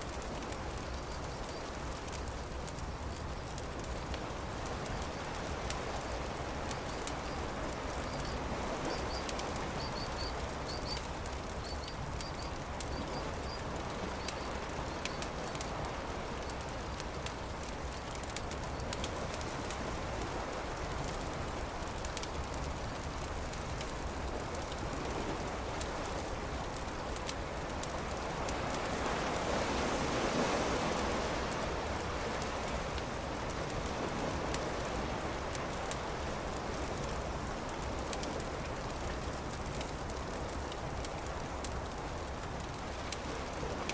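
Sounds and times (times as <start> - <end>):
campfire crackling and popping: 0.0 - 43.9
small bird chirping: 8.0 - 11.0.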